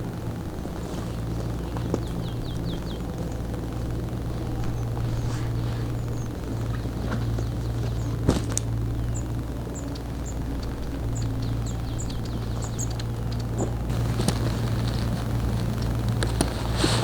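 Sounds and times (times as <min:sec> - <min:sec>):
steady low hum: 0:00.0 - 0:17.0
small bird chirping: 0:01.0 - 0:08.2, 0:08.8 - 0:16.8.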